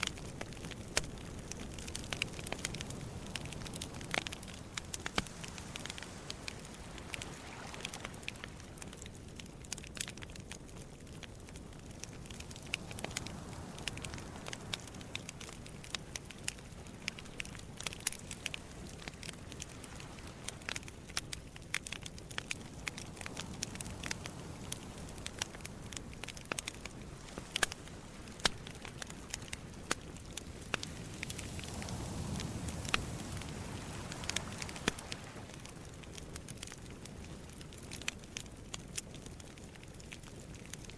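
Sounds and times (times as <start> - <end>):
campfire crackling and popping: 0.0 - 40.9
low rumble of sea waves: 0.0 - 40.9.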